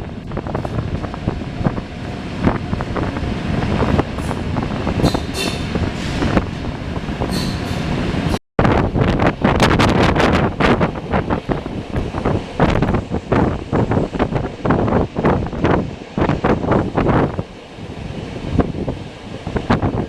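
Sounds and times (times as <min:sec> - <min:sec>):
train rumbling on track: 0:00.0 - 0:20.0
high wheel squeals: 0:07.3 - 0:07.8.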